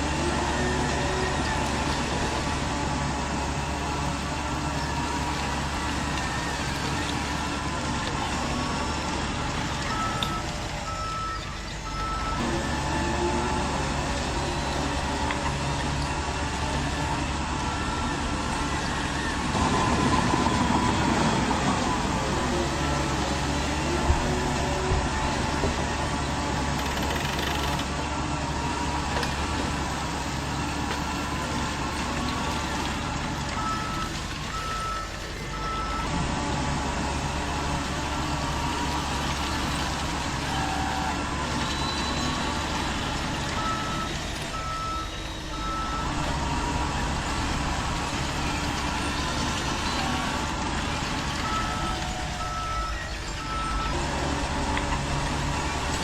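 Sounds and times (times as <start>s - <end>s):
toy vehicles running: 26.6s - 27.9s.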